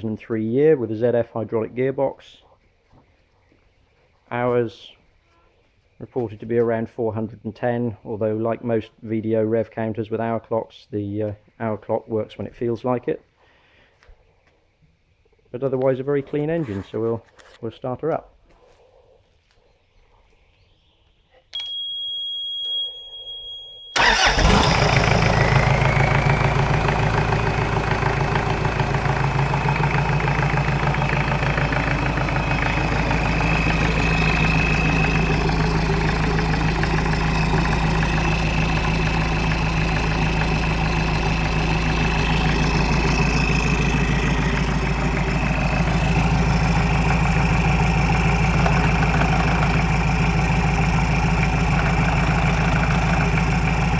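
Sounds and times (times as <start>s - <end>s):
diesel engine starting and idling: 24.0s - 53.9s.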